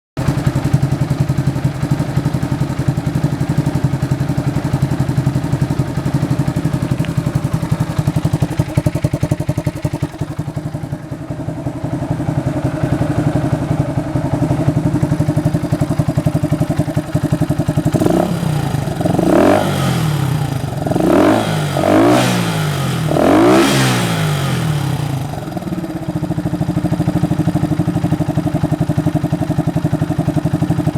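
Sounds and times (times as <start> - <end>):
motorcycle engine idling: 0.2 - 30.9
engine revving: 17.8 - 26.0.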